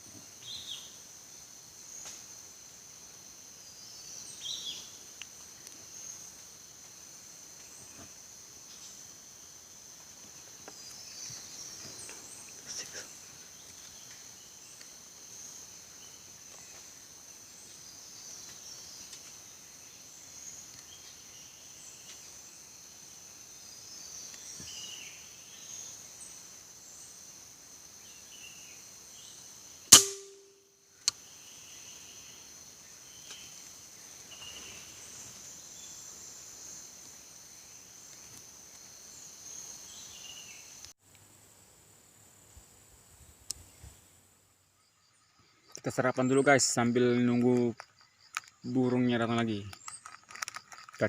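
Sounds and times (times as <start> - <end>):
high insect drone: 0.0 - 51.0
sharp air rifle shot: 29.9 - 30.6.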